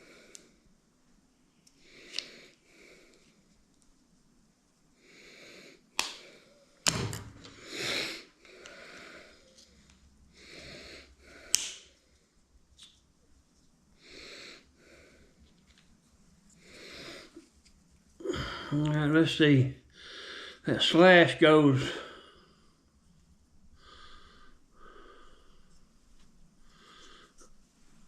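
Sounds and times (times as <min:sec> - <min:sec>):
dull knock of metal parts: 0:06.9 - 0:07.6
person breathing heavily: 0:10.3 - 0:11.6, 0:18.2 - 0:18.8, 0:19.9 - 0:20.7, 0:23.7 - 0:25.9, 0:26.6 - 0:27.6.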